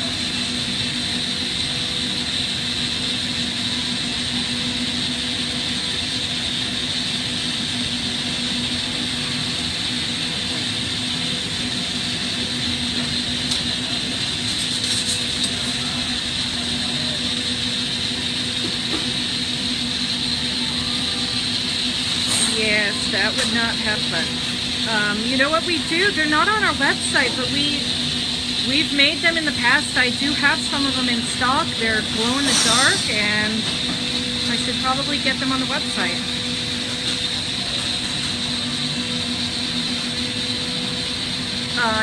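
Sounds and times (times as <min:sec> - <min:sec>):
torch burning with rushing noise: 0:00.0 - 0:42.0.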